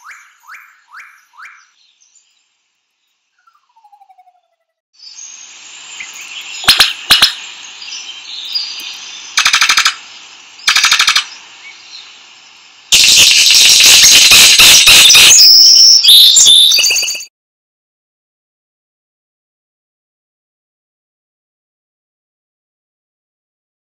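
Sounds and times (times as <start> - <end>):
steady high hiss: 5.0 - 16.2
rattling bird calls: 6.6 - 7.4, 8.8 - 10.0, 10.6 - 11.4
sharp snaps: 8.8 - 10.1, 10.7 - 11.4.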